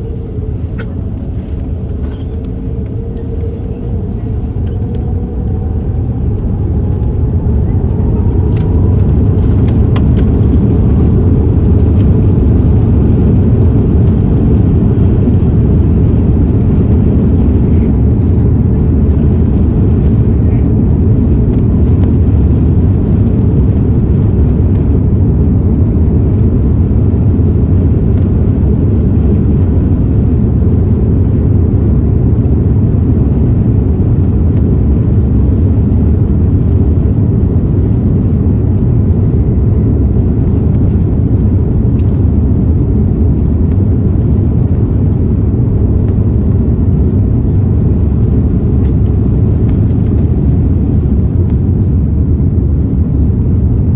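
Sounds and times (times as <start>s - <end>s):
jet engines rumbling in cabin: 0.0s - 53.9s.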